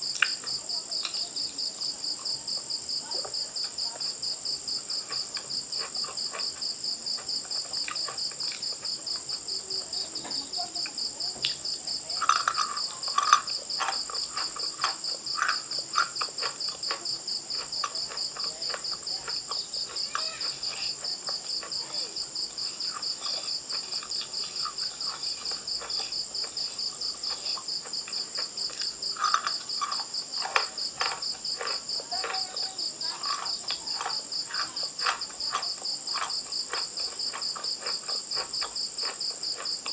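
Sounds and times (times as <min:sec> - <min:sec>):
crickets trilling: 0:00.0 - 0:39.9
crunching and chewing: 0:00.0 - 0:39.9.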